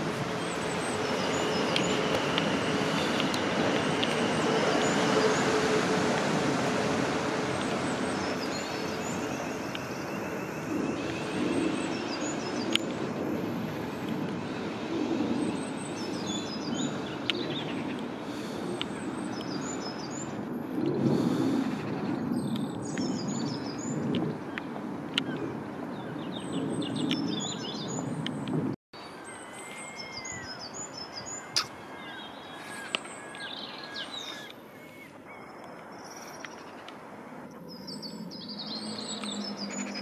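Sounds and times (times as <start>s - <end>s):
birds chirping: 0.0s - 5.9s, 7.5s - 14.7s, 15.3s - 40.0s
train wheels and motors rumbling: 0.0s - 18.2s.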